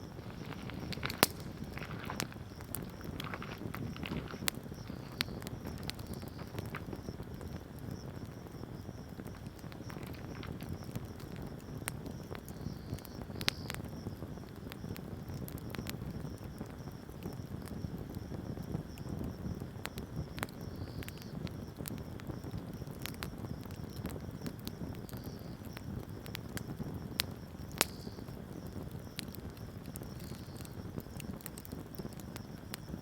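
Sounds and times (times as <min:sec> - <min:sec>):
rush of flame: 0:00.0 - 0:13.8
fire crackles and pops: 0:00.0 - 0:33.0.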